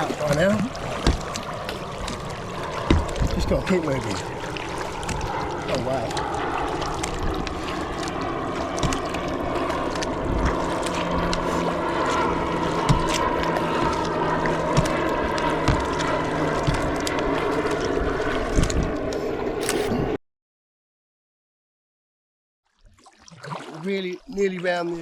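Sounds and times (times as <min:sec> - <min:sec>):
water from paddle strokes: 0:00.0 - 0:19.9, 0:22.6 - 0:25.0
wind on microphone: 0:00.0 - 0:20.1
paddle knocks: 0:00.3 - 0:03.8, 0:08.7 - 0:11.4, 0:12.6 - 0:17.2.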